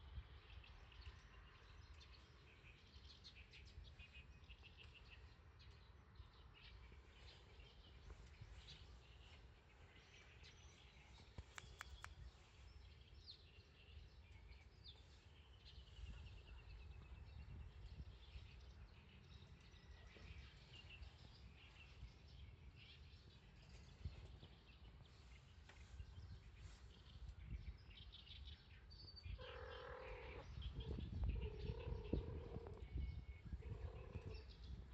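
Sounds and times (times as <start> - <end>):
small birds chirping and trilling: 0.0 - 34.9.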